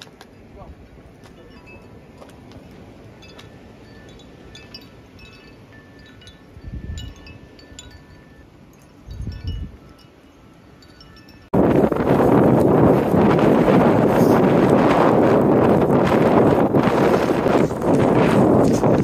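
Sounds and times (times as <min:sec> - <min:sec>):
wind gusts buffeting microphone: 0:00.0 - 0:08.0, 0:09.0 - 0:10.0, 0:11.1 - 0:19.0
steady wind: 0:00.0 - 0:19.0
high metallic tinkling: 0:01.3 - 0:02.3, 0:03.1 - 0:11.6.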